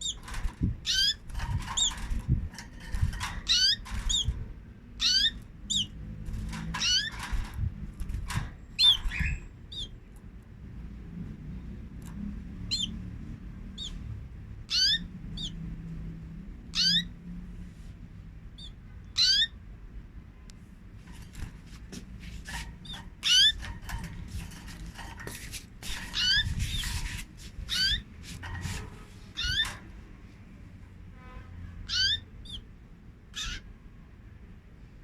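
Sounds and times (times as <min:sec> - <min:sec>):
canaries rising call notes: 0:00.0 - 0:02.3, 0:02.9 - 0:04.4, 0:05.0 - 0:10.0, 0:12.7 - 0:13.0, 0:14.6 - 0:15.6, 0:16.7 - 0:17.2, 0:18.6 - 0:19.6, 0:22.4 - 0:25.2, 0:25.8 - 0:29.9, 0:31.8 - 0:32.7, 0:33.3 - 0:33.7.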